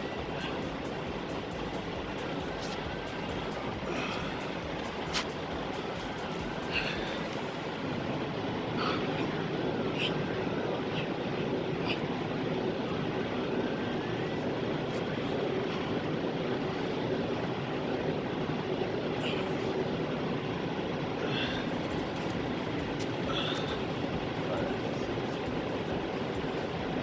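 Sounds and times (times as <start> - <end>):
truck cab road and engine noise: 0.0 - 27.0.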